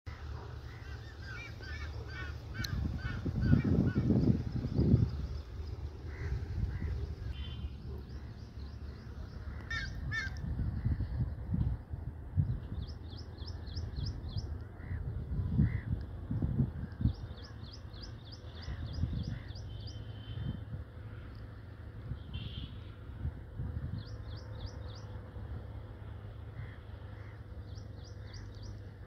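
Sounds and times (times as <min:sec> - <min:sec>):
harsh bird calls: 0:00.1 - 0:11.2
birds chirping: 0:00.1 - 0:11.4, 0:12.4 - 0:16.0, 0:16.7 - 0:20.6, 0:26.5 - 0:29.0
low uneven rumble: 0:00.1 - 0:19.8.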